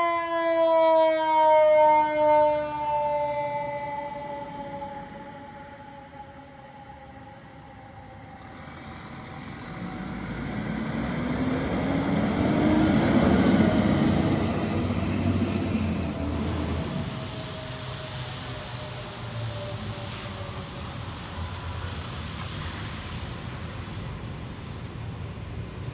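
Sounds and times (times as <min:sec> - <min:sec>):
emergency siren: 0:00.0 - 0:23.8
vehicle driving past: 0:08.3 - 0:20.6.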